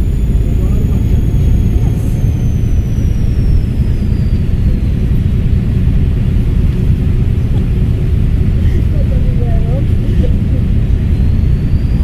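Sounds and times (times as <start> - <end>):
turbocharger whistle: 0.0 - 6.7, 10.7 - 12.0
diesel bus engine rumbling: 0.0 - 12.0.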